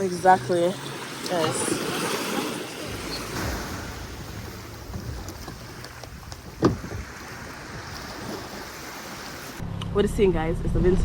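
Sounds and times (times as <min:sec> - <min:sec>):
sea surf: 0:00.0 - 0:09.6
wind buffeting microphone: 0:00.0 - 0:09.6
short thump: 0:03.3 - 0:07.1.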